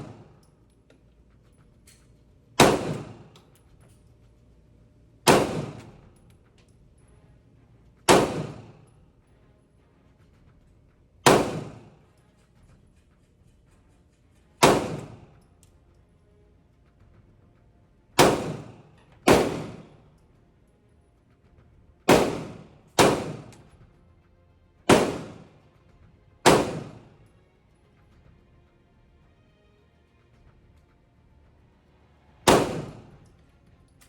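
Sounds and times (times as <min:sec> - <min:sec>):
gunshots with echo: 0:00.0 - 0:00.4, 0:02.6 - 0:03.4, 0:05.3 - 0:06.1, 0:08.1 - 0:08.9, 0:11.2 - 0:12.0, 0:14.6 - 0:15.4, 0:18.2 - 0:20.0, 0:22.1 - 0:23.8, 0:24.9 - 0:25.6, 0:26.4 - 0:27.1, 0:32.4 - 0:33.3.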